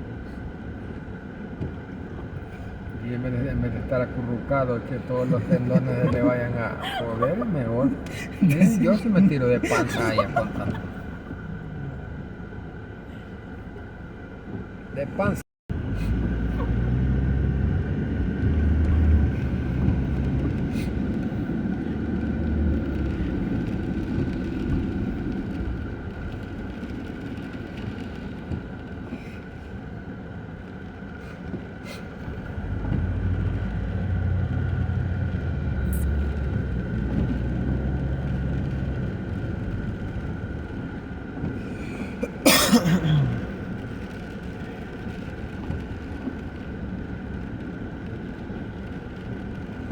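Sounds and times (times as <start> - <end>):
passing traffic: 0.0 - 49.9
vehicle engine and road noise: 0.0 - 49.9
loud cough: 9.6 - 10.9, 42.2 - 43.6.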